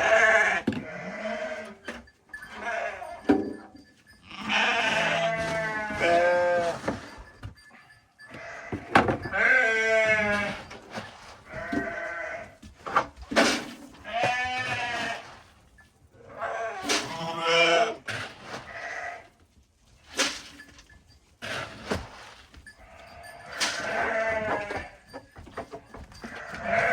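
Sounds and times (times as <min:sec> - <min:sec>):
sheep bleating: 0:00.0 - 0:01.8, 0:02.5 - 0:03.3, 0:04.2 - 0:07.1, 0:08.3 - 0:10.7, 0:11.5 - 0:12.6, 0:16.2 - 0:18.0, 0:22.8 - 0:25.2, 0:26.2 - 0:26.9.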